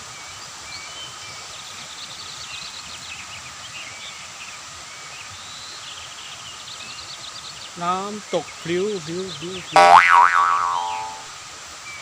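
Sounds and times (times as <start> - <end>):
forest ambience hiss: 0.0 - 12.0
birds chirping: 7.6 - 11.3.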